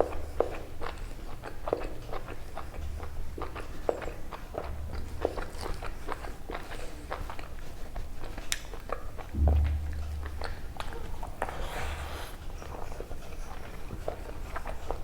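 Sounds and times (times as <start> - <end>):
close chewing and mouth clicks: 0.0 - 15.0
low thud: 9.3 - 11.6
hissing slurp: 11.4 - 12.7.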